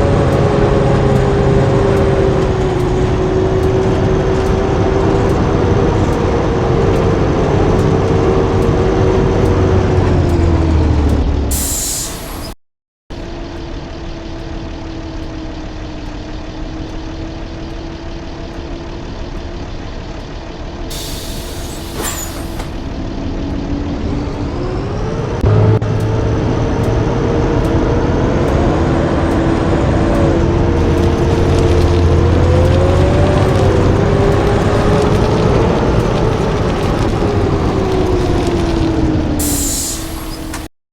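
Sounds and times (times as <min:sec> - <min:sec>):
bus diesel engine running: 0:00.0 - 0:40.7
air brakes hissing: 0:11.5 - 0:12.6, 0:20.9 - 0:22.9, 0:39.4 - 0:40.7.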